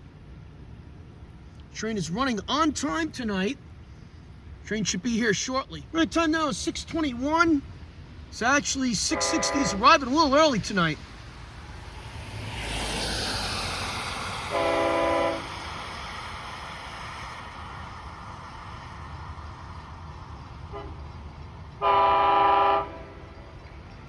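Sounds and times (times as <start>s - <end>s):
train rumbling: 0.0s - 24.0s
train horn blasts: 9.1s - 9.8s, 14.5s - 15.6s, 20.7s - 21.0s, 21.8s - 23.3s.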